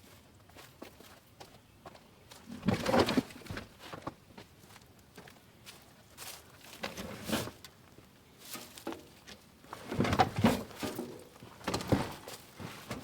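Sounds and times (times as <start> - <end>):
clunks and knocks: 9.8 - 13.0.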